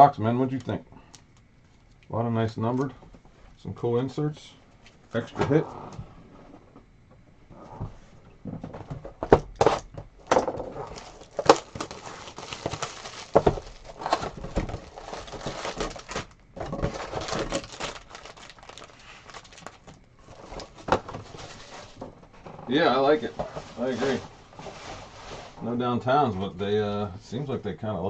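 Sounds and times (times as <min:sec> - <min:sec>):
card packaging crinkling and tearing: 0:10.8 - 0:22.0.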